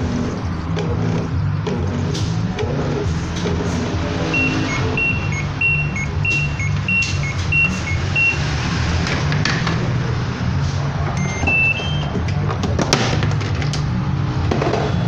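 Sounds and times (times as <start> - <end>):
washing machine beeping: 3.4 - 9.4, 11.1 - 12.3.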